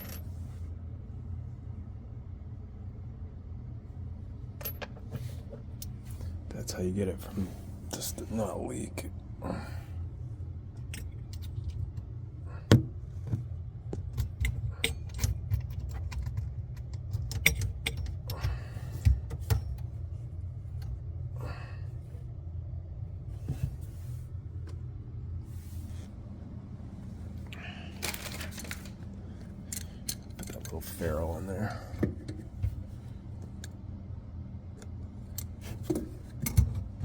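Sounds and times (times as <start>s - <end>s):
metal plumbing parts clinking: 0.0s - 0.4s, 13.9s - 19.9s, 28.0s - 29.0s, 29.6s - 32.8s
steady low hum: 0.0s - 37.0s.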